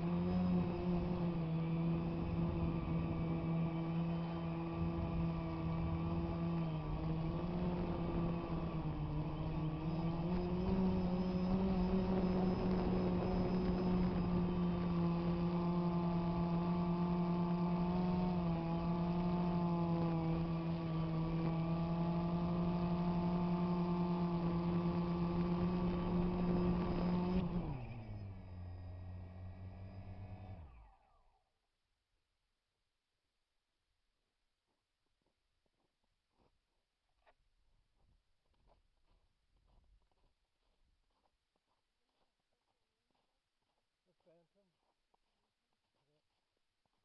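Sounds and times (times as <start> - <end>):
drone propellers buzzing: 0.0 - 31.4.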